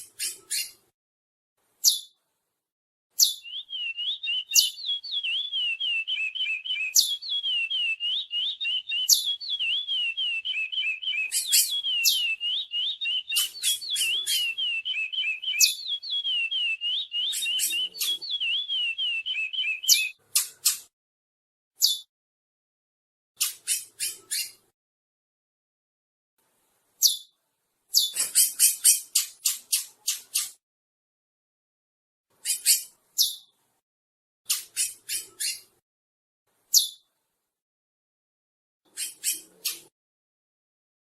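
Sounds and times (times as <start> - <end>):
finch singing warbled whistles: 3.2 - 20.2, 38.9 - 39.9.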